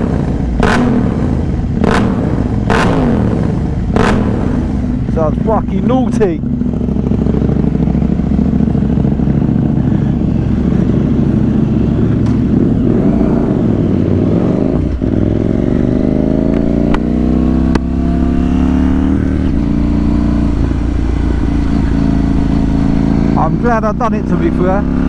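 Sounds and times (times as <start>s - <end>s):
exhaust cracks: 0.0s - 6.5s
motorcycle engine running: 0.0s - 25.0s.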